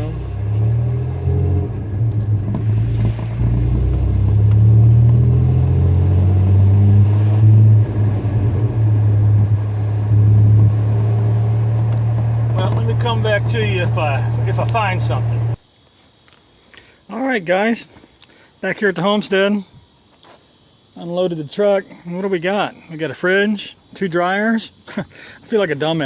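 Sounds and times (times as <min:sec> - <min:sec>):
pickup truck engine: 0:00.0 - 0:15.6
road rumble: 0:00.0 - 0:15.6.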